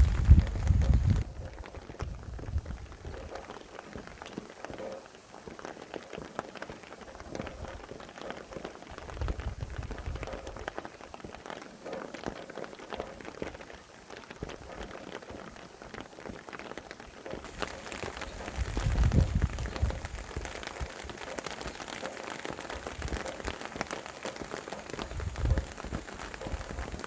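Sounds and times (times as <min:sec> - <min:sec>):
wind gusting: 0:00.0 - 0:03.4, 0:08.9 - 0:10.7, 0:17.4 - 0:27.0
raindrops striking surfaces: 0:00.0 - 0:27.0
steady rain: 0:00.0 - 0:27.0.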